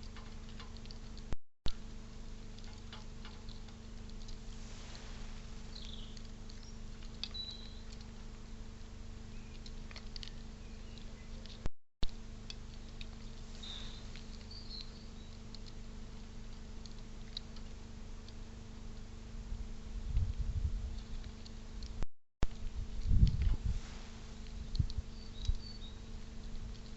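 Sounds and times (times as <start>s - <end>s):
electrical hum: 0.0s - 26.9s
faint clicks and scratches: 0.0s - 26.9s
high bird chirps: 5.7s - 6.7s, 7.3s - 7.9s, 13.6s - 15.3s, 25.1s - 26.0s.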